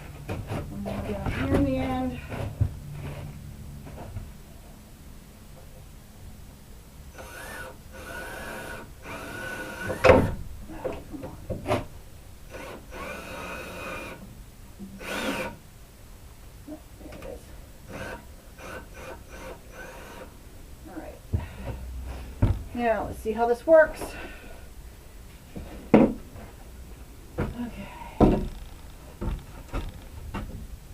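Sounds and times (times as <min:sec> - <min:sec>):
cordless drill driving screws: 0:07.2 - 0:10.3, 0:12.5 - 0:14.2, 0:15.0 - 0:15.6, 0:17.9 - 0:20.3
handling of wood: 0:27.4 - 0:30.8.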